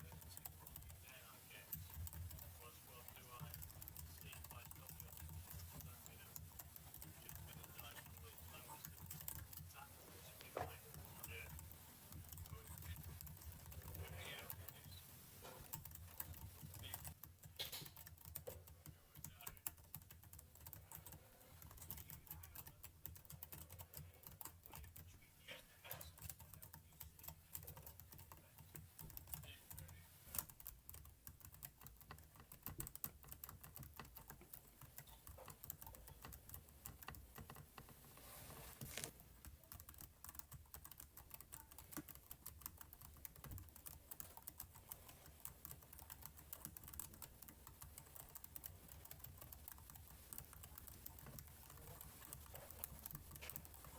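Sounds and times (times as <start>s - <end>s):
keyboard typing: 0.0s - 53.9s.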